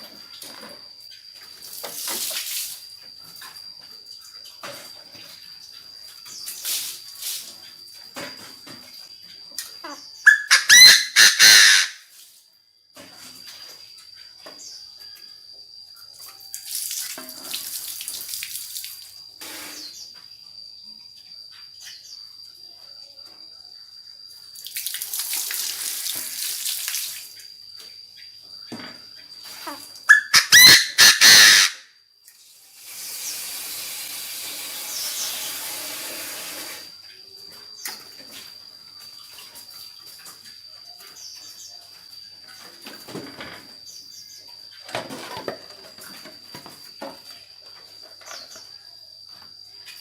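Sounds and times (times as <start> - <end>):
bird giving harsh rising calls: 10.3 - 12.0, 30.1 - 31.8.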